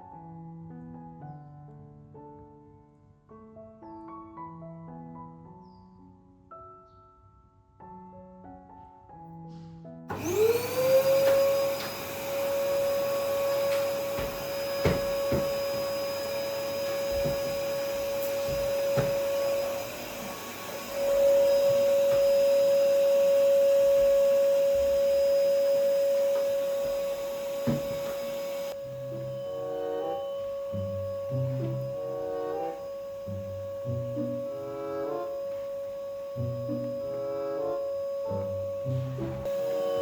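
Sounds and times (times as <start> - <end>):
vacuum cleaner motor whine: 10.1 - 40.0.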